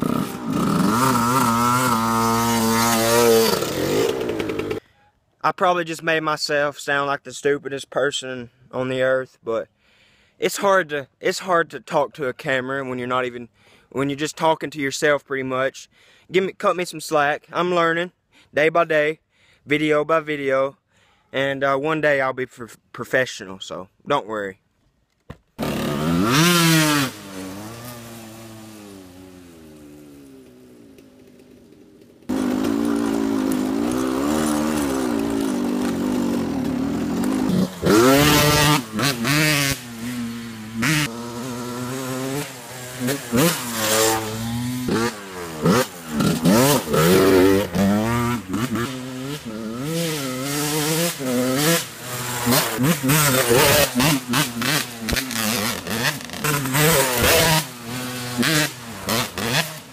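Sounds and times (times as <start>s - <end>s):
dirt bike engine revving: 0.0s - 4.8s, 25.6s - 59.9s.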